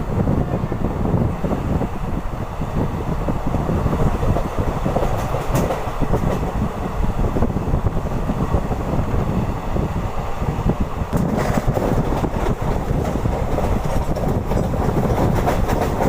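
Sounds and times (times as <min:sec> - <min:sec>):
train wheels rumbling: 0:00.0 - 0:16.0
sharp track clicks: 0:03.5 - 0:06.9, 0:11.1 - 0:16.0.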